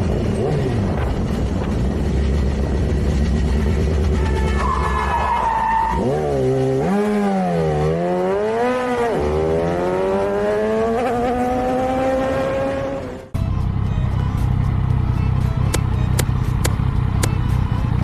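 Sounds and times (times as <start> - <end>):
vehicle engine revving: 0.0 - 13.4.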